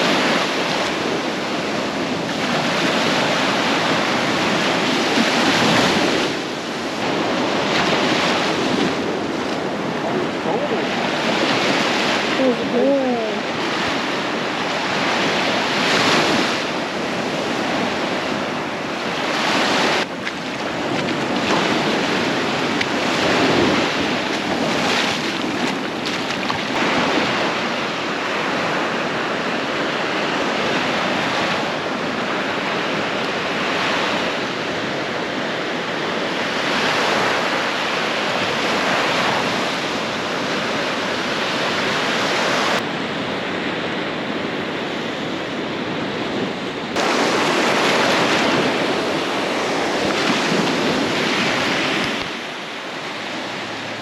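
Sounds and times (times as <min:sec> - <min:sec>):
surf breaking on a beach: 0:00.0 - 0:54.0
wind on microphone: 0:00.0 - 0:54.0.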